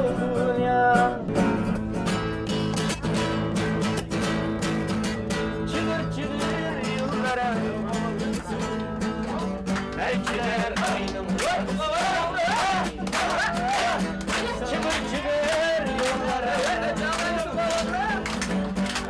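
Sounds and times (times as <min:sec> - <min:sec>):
person singing: 0:10.0 - 0:18.3.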